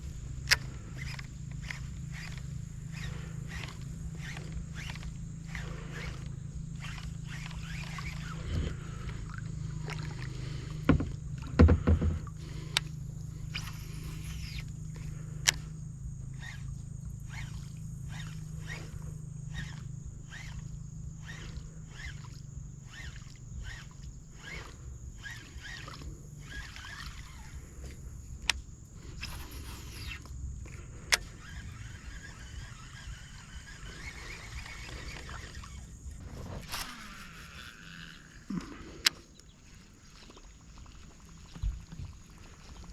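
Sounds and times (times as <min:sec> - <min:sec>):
steady high whine: 0:00.0 - 0:39.8
sharp clicks and knocks: 0:10.8 - 0:12.9.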